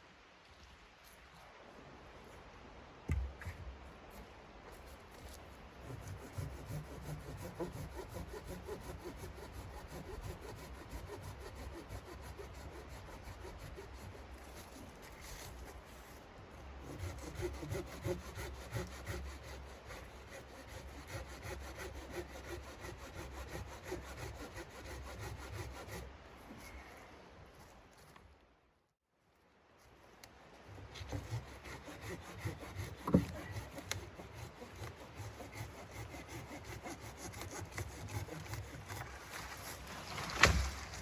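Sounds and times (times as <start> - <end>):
saw cutting through wood: 5.8 - 15.8, 16.8 - 26.1, 30.9 - 41.0.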